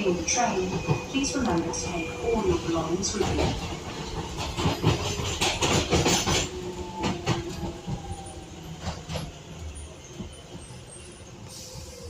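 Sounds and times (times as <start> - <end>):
wheels clacking over rail joints: 0.0 - 10.6
train rumble: 0.0 - 12.0.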